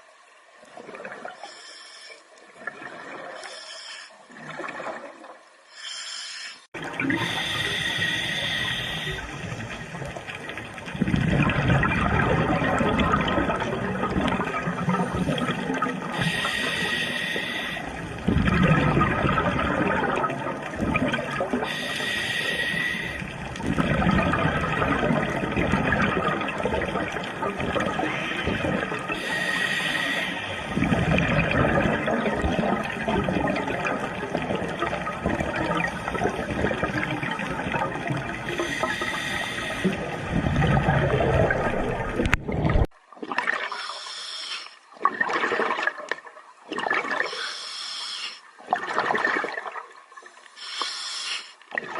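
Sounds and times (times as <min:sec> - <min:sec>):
regulator breath hissing: 0:01.4 - 0:02.2, 0:03.4 - 0:04.2, 0:05.7 - 0:09.5, 0:16.2 - 0:17.9, 0:21.7 - 0:23.2, 0:29.2 - 0:30.7, 0:38.6 - 0:40.0, 0:43.7 - 0:44.8, 0:47.3 - 0:48.4, 0:50.6 - 0:51.6
bubbling exhalations: 0:06.7 - 0:43.9.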